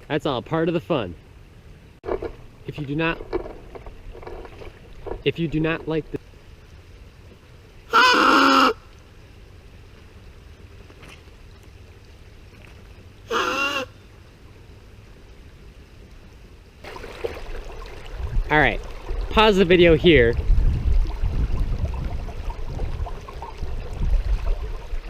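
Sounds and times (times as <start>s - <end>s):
honking bird calls: 7.9s - 8.8s, 13.3s - 14.0s.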